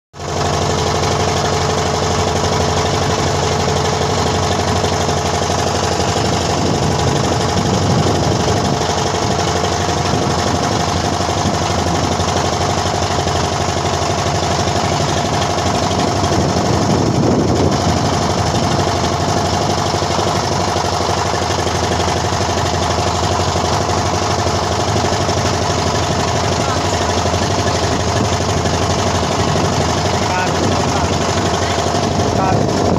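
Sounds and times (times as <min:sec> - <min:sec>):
vehicle engine running: 0:00.2 - 0:32.9.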